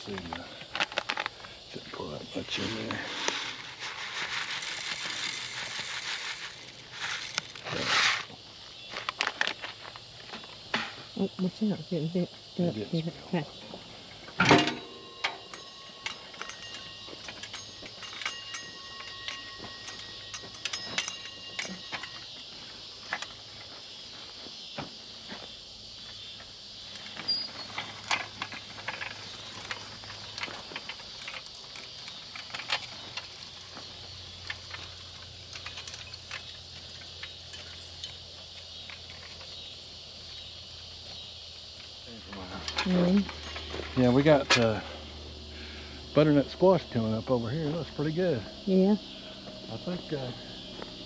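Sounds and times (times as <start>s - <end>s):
garden seeder clicking and rattling: 0.0s - 10.5s, 27.0s - 39.7s.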